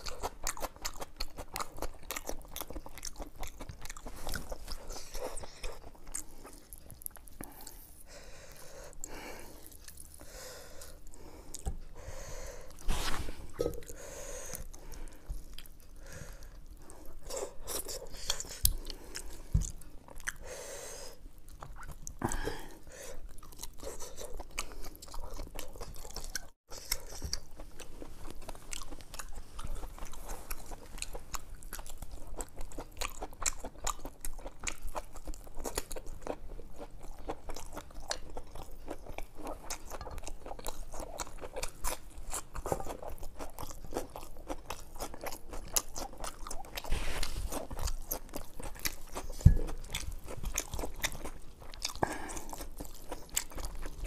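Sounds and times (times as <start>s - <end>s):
wet chewing and crunching: 0.0s - 11.9s, 12.6s - 20.5s, 21.1s - 54.0s.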